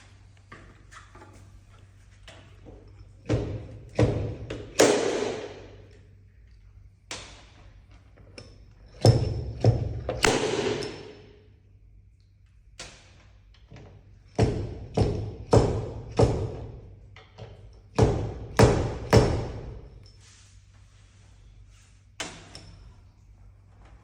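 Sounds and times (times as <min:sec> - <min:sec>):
tools knocking on car panel: 0:14.4 - 0:16.8.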